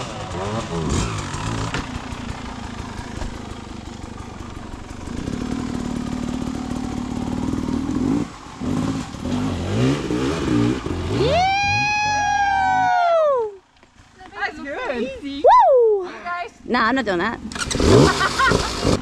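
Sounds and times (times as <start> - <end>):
dirt bike engine revving: 0.0 - 12.8, 17.4 - 19.0.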